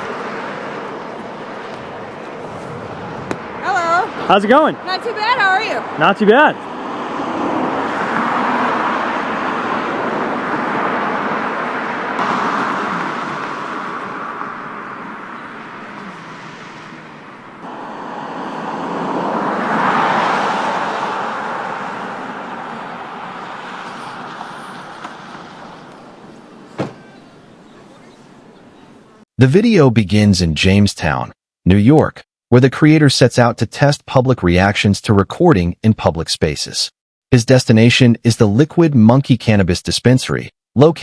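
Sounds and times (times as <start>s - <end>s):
cars passing: 0.0s - 29.2s.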